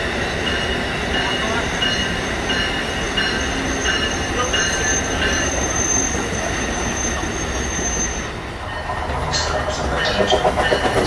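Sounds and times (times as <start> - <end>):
train wheels rumbling on rails: 0.0 - 11.0
high wheel squeal: 1.4 - 11.0.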